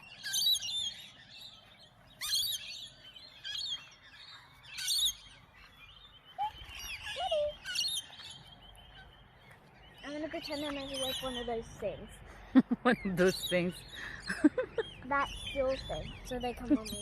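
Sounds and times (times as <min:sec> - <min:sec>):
small birds twittering: 0:00.0 - 0:17.0.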